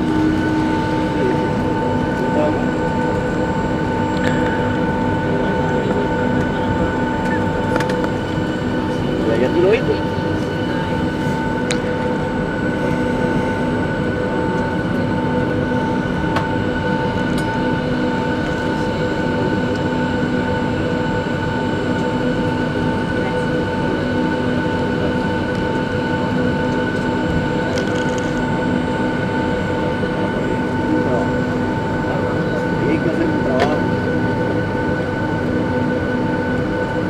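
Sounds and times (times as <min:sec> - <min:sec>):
steady cabin rumble: 0:00.0 - 0:19.0
jet engines whining at idle: 0:00.0 - 0:37.0.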